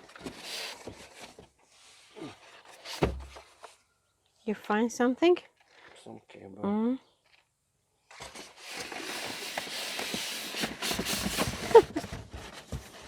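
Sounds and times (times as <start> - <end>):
packaging rustling and knocking: 2.7 - 3.7, 8.1 - 13.0.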